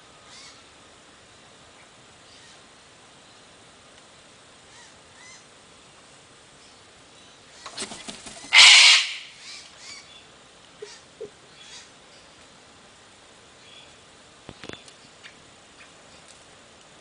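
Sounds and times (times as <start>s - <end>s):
parrot screeching: 8.5s - 9.4s.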